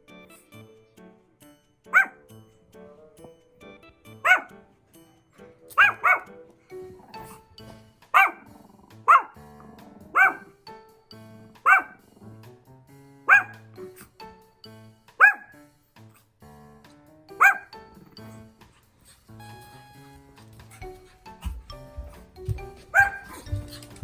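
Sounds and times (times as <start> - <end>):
small dog barking: 1.9 - 2.2, 4.2 - 4.5, 5.7 - 6.4, 8.1 - 9.4, 10.0 - 10.6, 11.5 - 12.1, 13.3 - 13.7, 15.2 - 15.6, 17.4 - 18.2, 22.9 - 23.5.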